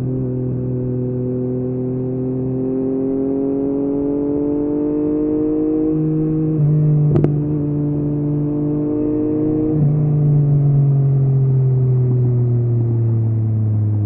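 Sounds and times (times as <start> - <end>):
motorcycle engine at low revs: 0.0 - 14.0.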